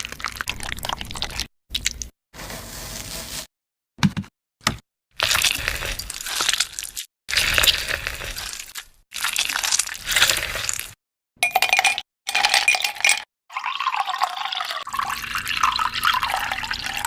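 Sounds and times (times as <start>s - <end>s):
crunching and crackling: 5.2s - 11.0s.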